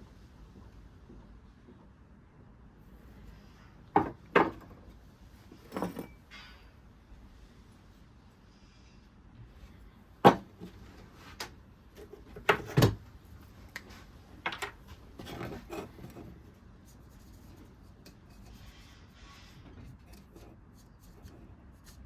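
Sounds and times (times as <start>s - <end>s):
hard objects knocking: 3.9s - 4.8s, 10.2s - 10.7s.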